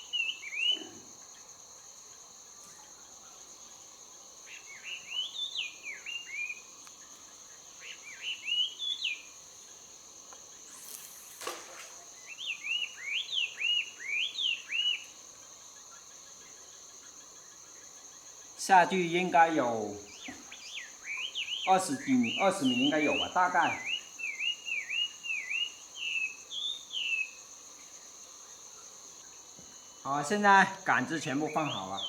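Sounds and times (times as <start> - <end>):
insects droning: 0.0 - 32.0
songbird chirping: 0.0 - 32.0
brief rustling: 10.7 - 12.2.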